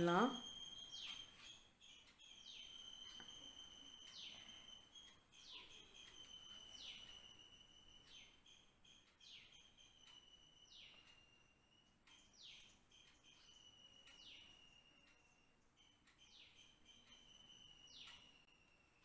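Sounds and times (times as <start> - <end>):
thin steady high tone: 0.0 - 19.0
falling whistle bird calls: 2.3 - 8.7.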